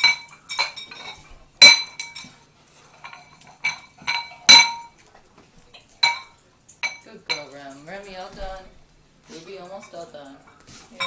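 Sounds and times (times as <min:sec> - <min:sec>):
metal bowl clinking: 0:00.0 - 0:08.6, 0:09.5 - 0:11.0.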